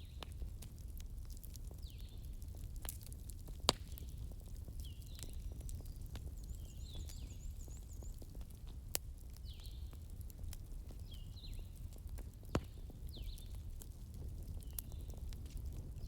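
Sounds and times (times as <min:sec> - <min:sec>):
flames rumbling: 0:00.0 - 0:16.0
logs crackling: 0:00.0 - 0:16.0.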